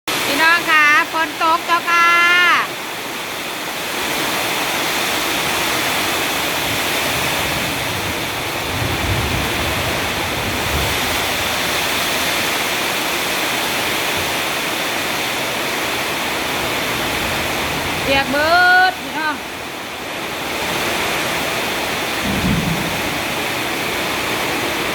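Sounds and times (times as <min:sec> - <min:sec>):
heavy rain pouring: 0:00.1 - 0:24.9
low rumble: 0:22.2 - 0:24.2.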